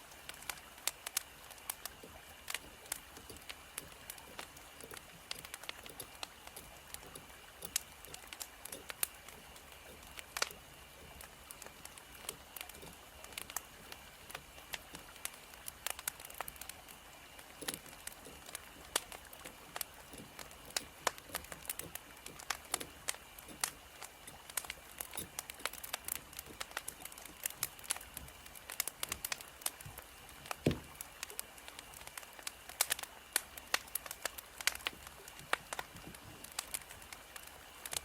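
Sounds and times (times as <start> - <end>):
wood fire crackling and popping: 0.0 - 38.0.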